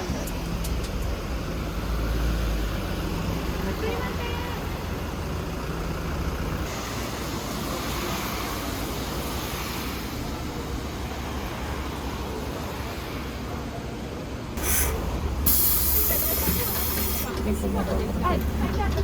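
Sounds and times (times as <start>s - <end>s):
train running rumble: 14.6s - 19.0s.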